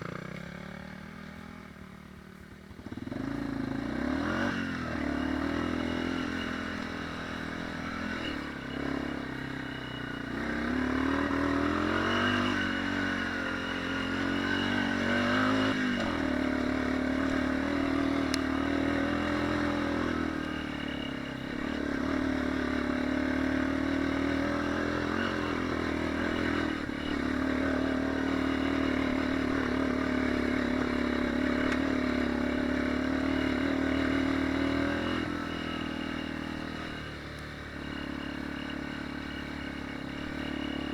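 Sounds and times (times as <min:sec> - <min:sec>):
dirt bike engine revving: 0:02.8 - 0:40.9.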